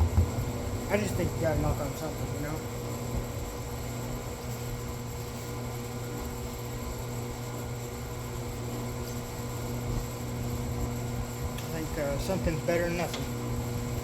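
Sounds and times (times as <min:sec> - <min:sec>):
machine hum: 0:00.0 - 0:08.9.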